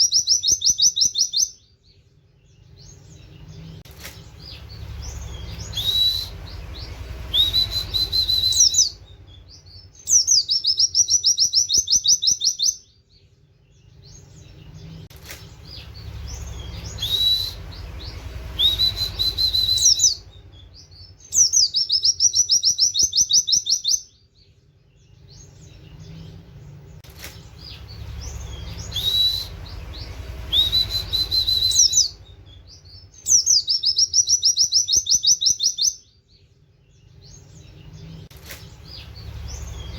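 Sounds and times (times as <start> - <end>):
bird whistles and trills: 0.0 - 1.7, 2.6 - 12.9, 14.0 - 24.2, 27.2 - 36.4
low background rumble: 0.8 - 39.9.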